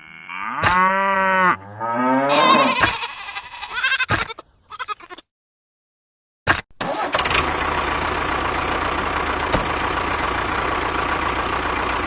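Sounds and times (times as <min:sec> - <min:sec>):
long wavering bleat: 0:02.2 - 0:05.2.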